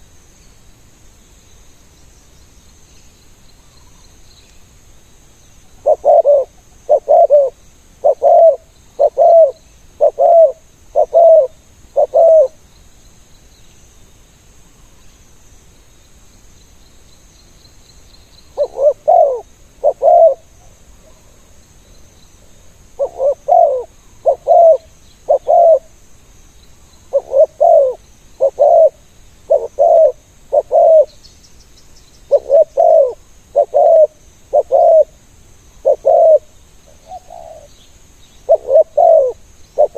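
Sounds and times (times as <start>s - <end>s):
faint high insect buzzing: 0.0s - 39.9s
dove cooing: 5.8s - 12.6s, 18.6s - 20.8s, 23.0s - 25.9s, 27.1s - 31.2s, 32.3s - 35.2s, 35.8s - 37.7s, 38.4s - 39.9s.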